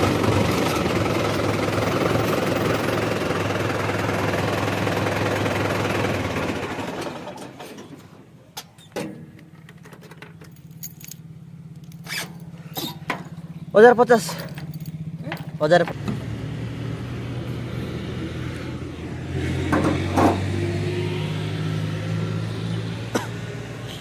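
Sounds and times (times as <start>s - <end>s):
farm machinery engine clattering: 0.0s - 16.3s.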